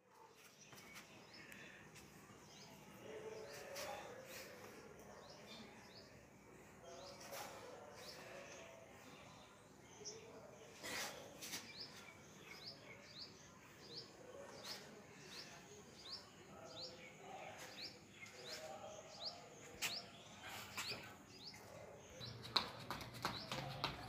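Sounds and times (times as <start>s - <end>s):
footsteps on concrete: 0.4s - 2.1s, 19.6s - 20.0s, 22.2s - 24.0s.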